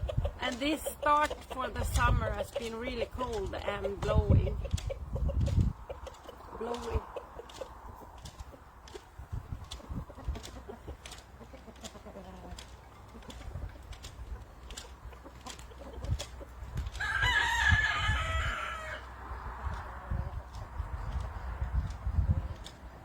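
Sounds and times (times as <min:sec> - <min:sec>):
rooster crowing: 0:17.0 - 0:19.1.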